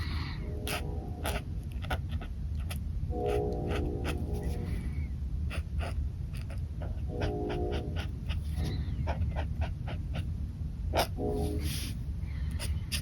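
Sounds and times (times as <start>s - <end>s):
low hum: 0.0s - 13.0s
pen scratching paper: 0.6s - 4.6s, 5.5s - 10.3s.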